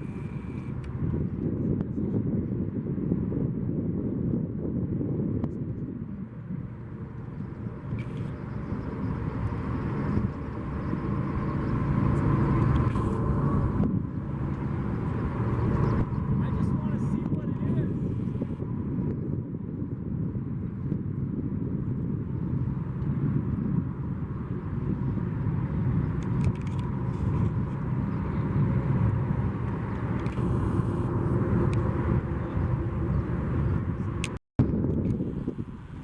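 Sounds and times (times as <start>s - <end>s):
low outdoor rumble: 0.0s - 36.0s.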